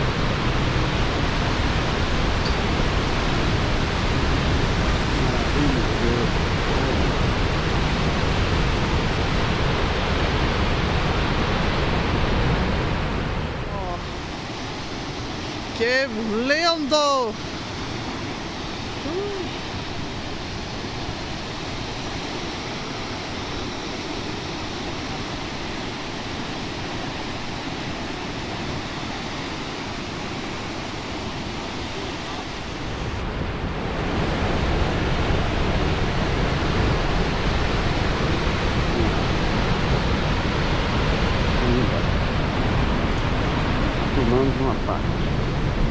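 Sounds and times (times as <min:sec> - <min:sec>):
rushing water: 0:00.0 - 0:44.3.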